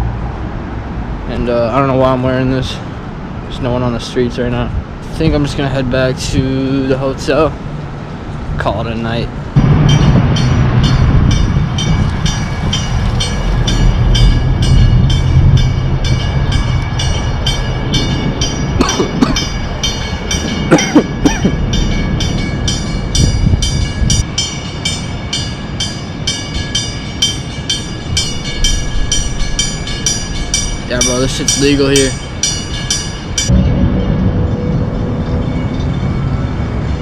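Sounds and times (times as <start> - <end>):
train low rumble: 0.0 - 37.0
steady high whine: 9.3 - 37.0
train wheels clacking: 9.9 - 36.1.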